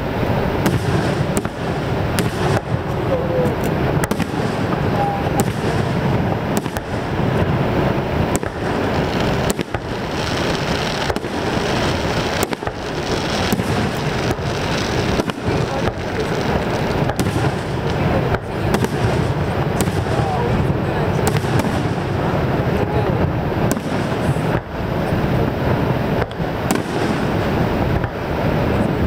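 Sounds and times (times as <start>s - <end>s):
fireworks bursting with sharp bangs: 0.0s - 29.0s
rushing background noise: 0.0s - 29.0s.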